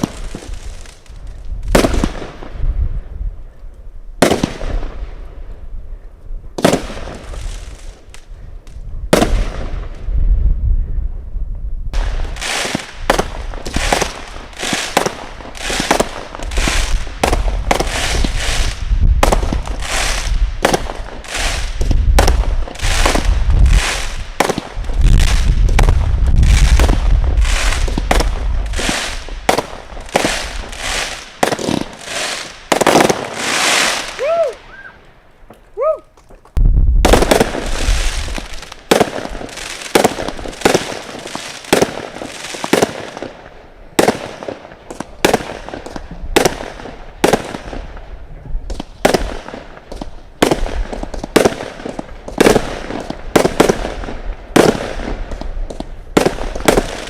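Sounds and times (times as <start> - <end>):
firework shots with crackling tails: 0.0 - 3.5, 4.2 - 35.0, 36.6 - 57.0
low rumble: 36.6 - 37.2.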